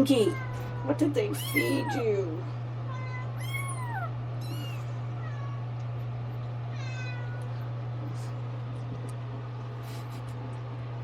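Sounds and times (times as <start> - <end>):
kitten meowing: 0.0 - 2.2, 2.9 - 5.6
steady low hum: 0.0 - 11.0.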